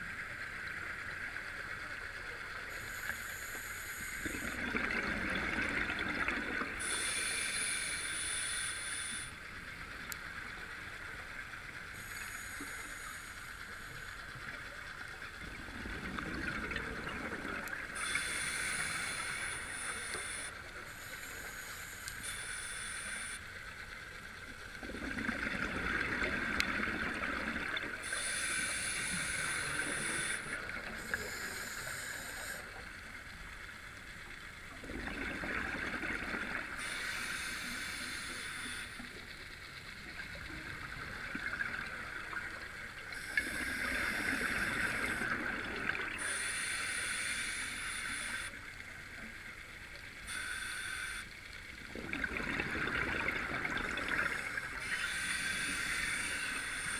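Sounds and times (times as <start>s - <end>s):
regulator hissing inhalation: 6.8s - 9.4s, 17.9s - 23.5s, 28.0s - 32.9s, 36.8s - 39.1s, 43.1s - 45.4s, 46.2s - 48.6s, 50.2s - 51.4s, 54.1s - 56.9s.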